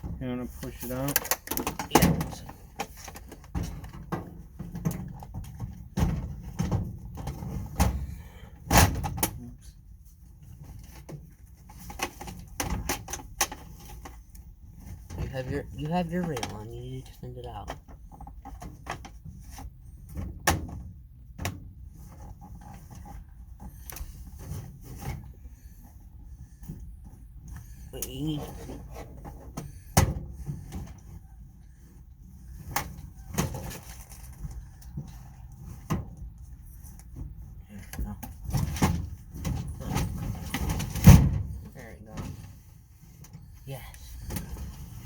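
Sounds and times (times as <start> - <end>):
knocks and clunks in tool box: 1.0 - 9.4.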